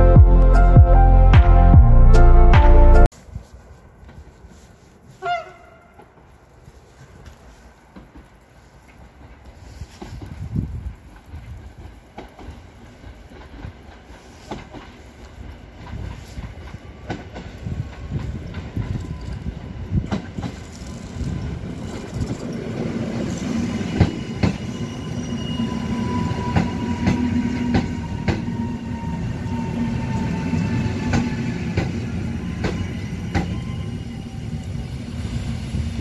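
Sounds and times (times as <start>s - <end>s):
train rumble: 3.1s - 36.0s
train wheels clacking over joints: 6.0s - 24.8s, 26.4s - 28.7s, 29.6s - 33.6s.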